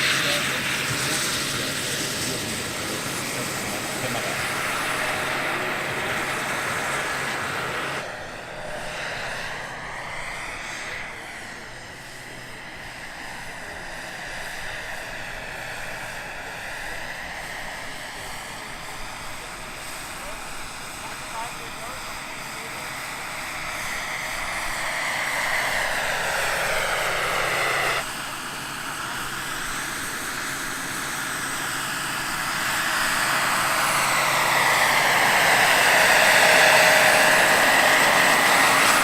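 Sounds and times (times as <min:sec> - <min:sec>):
model helicopter turbine whine: 0:00.0 - 0:39.0
rotor air rushing: 0:23.7 - 0:28.1.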